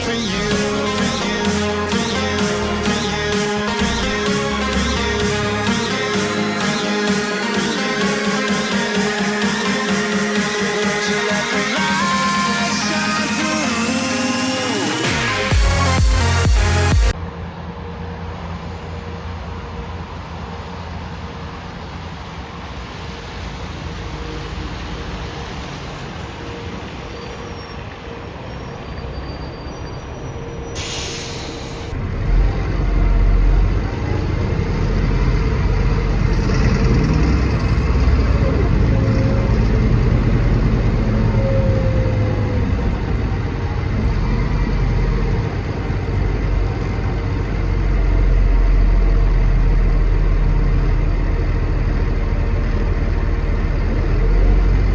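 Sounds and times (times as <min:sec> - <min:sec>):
bus engine running: 0:00.0 - 0:54.9
compressed air hiss: 0:30.8 - 0:32.0.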